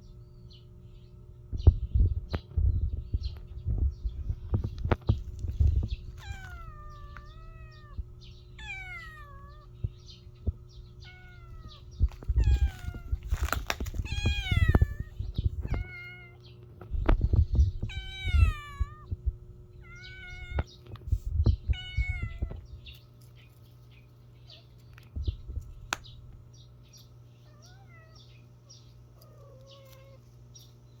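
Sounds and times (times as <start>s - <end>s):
low bumps and rumble: 1.5s - 8.6s, 9.5s - 15.9s, 16.7s - 22.9s
kitten mewing: 6.1s - 9.8s, 11.0s - 16.4s.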